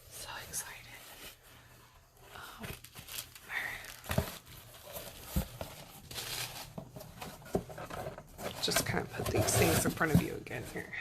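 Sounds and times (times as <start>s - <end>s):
packaging crinkling: 2.4s - 10.1s.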